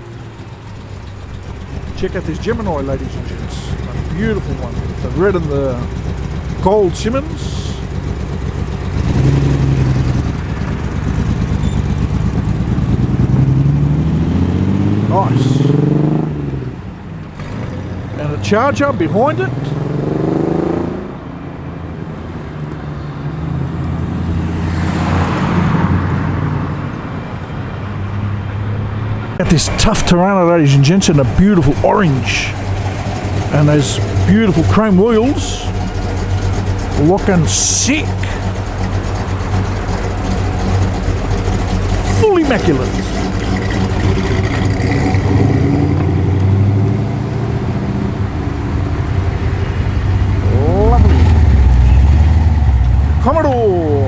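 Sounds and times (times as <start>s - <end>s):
car engine driving off: 0.0s - 21.2s, 23.6s - 28.0s, 29.4s - 54.0s
car engine driving past: 28.8s - 54.0s.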